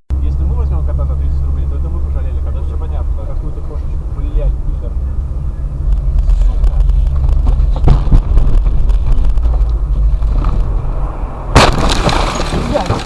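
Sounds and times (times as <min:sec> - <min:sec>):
car engine and road noise: 0:00.1 - 0:13.0
car collision bang and crunch: 0:07.5 - 0:09.6, 0:10.2 - 0:13.0.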